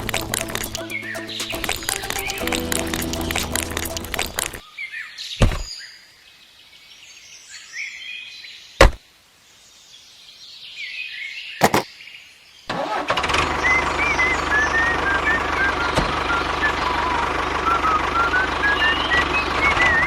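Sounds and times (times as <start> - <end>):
birds chirping: 0.0 - 6.0
sharp knocks: 11.6 - 11.8
steady engine-like hum: 13.2 - 20.0.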